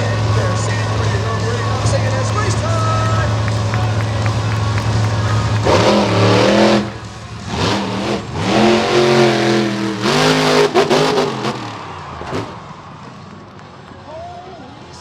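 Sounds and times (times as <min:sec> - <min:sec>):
monster truck engines revving: 0:00.0 - 0:14.0.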